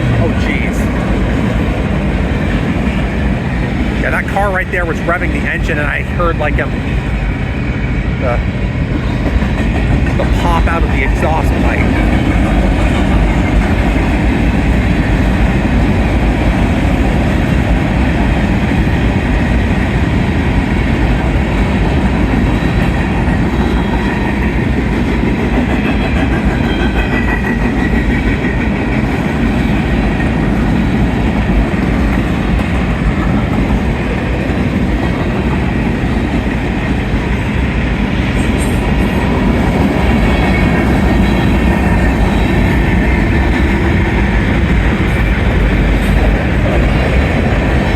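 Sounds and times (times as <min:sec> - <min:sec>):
freight train wheels rumbling on rails: 0:00.0 - 0:47.9.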